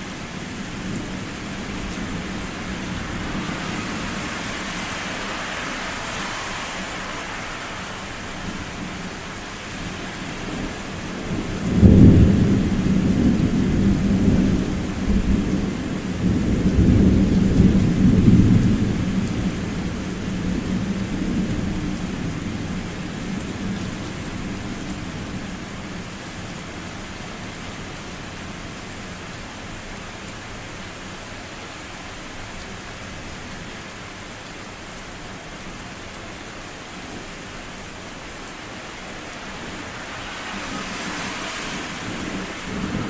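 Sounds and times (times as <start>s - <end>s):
rain hissing: 0.0s - 43.0s
thunder clap and rumbles: 10.5s - 22.8s, 40.2s - 43.0s.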